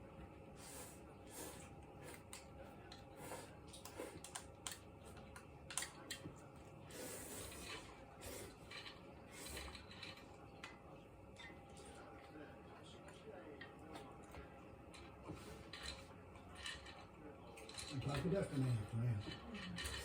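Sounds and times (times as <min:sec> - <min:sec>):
eating clicks and scraping: 0:01.3 - 0:10.8.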